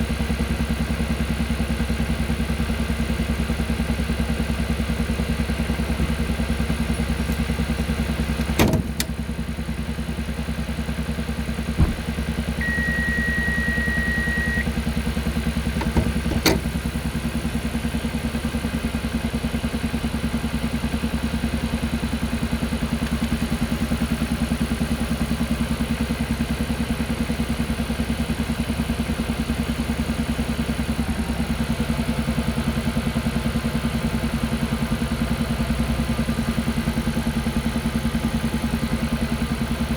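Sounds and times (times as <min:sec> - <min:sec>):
engine pulsing puck-puck: 0:00.0 - 0:39.9
sharp knocks: 0:11.8 - 0:12.2
steady beep: 0:12.6 - 0:14.7.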